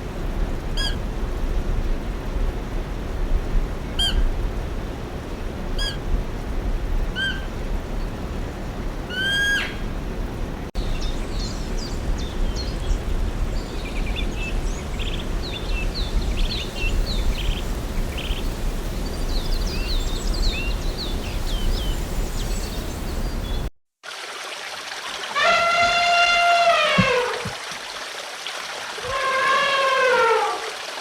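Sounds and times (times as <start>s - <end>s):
birds chirping: 10.8s - 23.7s.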